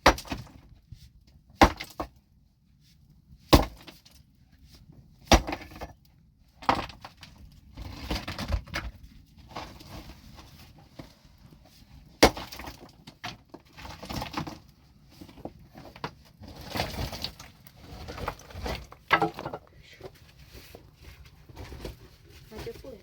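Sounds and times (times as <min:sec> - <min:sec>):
hard objects clattering and scraping: 0:12.2 - 0:23.0.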